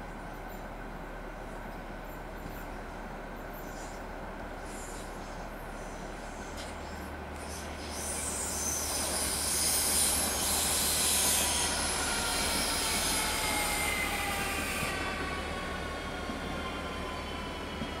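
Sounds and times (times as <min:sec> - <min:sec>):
electric train running noise: 0:04.6 - 0:18.0
high wheel squeals: 0:07.4 - 0:17.6.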